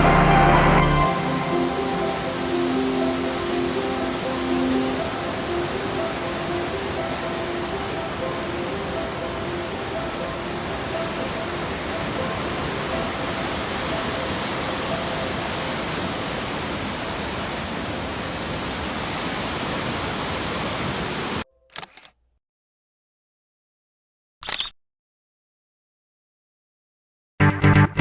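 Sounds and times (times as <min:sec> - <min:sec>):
faint music-like tones: 0:00.0 - 0:16.4
waterfall roaring: 0:00.8 - 0:21.4
brief clicks: 0:21.7 - 0:22.2, 0:24.4 - 0:24.8.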